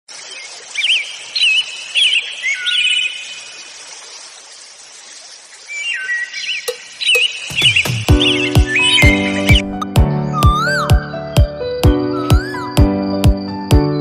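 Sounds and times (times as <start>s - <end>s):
birds whistled chirps: 0.3s - 3.6s, 5.7s - 11.2s, 12.0s - 12.8s.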